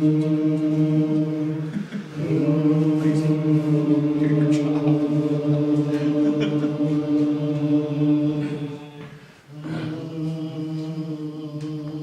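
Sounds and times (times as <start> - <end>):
choir singing held chords: 0.0 - 12.0.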